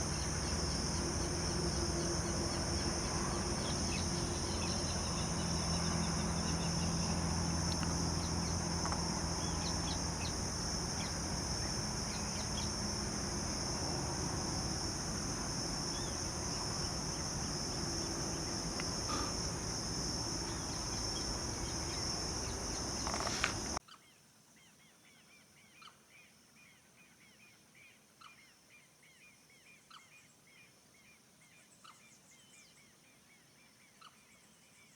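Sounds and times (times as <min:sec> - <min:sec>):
faint bird chirping: 0:00.0 - 0:12.8, 0:15.9 - 0:34.9
high-pitched insect drone: 0:00.0 - 0:23.8
bird calls: 0:15.9 - 0:26.0.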